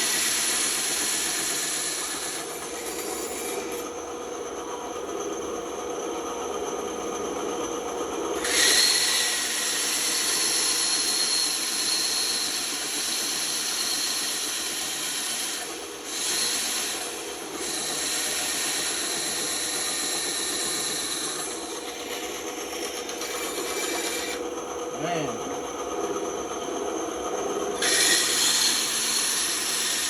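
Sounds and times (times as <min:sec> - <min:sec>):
saw blade cutting wood: 0:00.0 - 0:03.9, 0:08.4 - 0:25.4, 0:27.8 - 0:30.0
band saw motor hum: 0:00.0 - 0:30.0.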